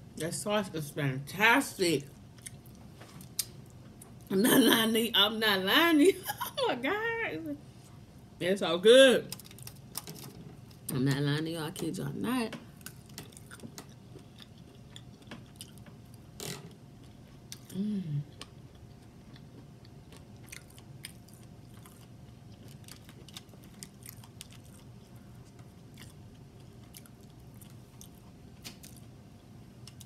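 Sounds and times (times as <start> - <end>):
person chewing: 2.3 - 4.3, 12.8 - 16.2, 17.0 - 29.1
person humming with enjoyment: 17.7 - 18.2.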